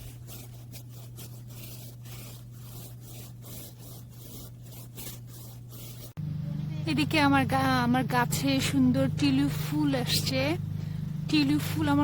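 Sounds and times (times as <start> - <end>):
paintbrush rasping on wood: 0.0 - 6.2
steady low hum: 0.0 - 12.0.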